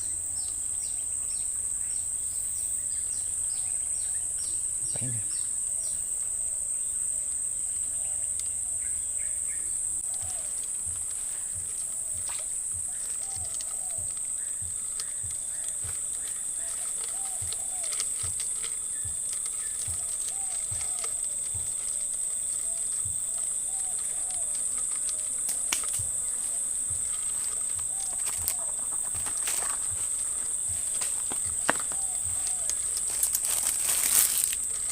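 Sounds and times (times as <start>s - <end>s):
insects droning: 0.0s - 34.9s
short wavering calls: 9.2s - 25.6s.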